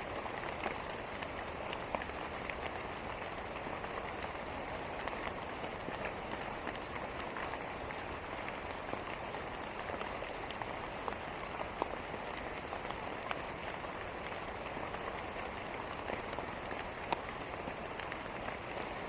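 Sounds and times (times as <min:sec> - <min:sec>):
raindrops ticking on a surface: 0:00.0 - 0:19.0
steady rain falling: 0:00.0 - 0:19.0.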